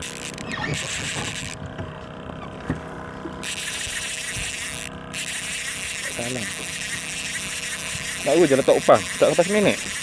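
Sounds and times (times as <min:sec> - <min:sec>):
fishing reel drag buzzing: 0:00.0 - 0:02.6, 0:03.4 - 0:10.0.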